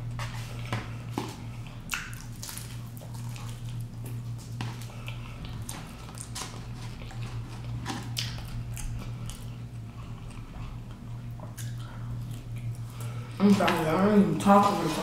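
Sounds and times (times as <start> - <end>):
steady low hum: 0.0 - 15.0
crunching crispy fried food: 1.9 - 9.8.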